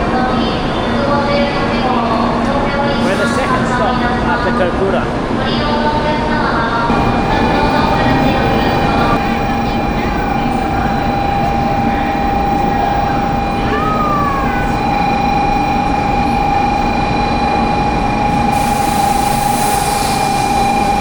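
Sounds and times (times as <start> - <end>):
train rushing through station: 0.0 - 21.0
high whine: 6.9 - 21.0.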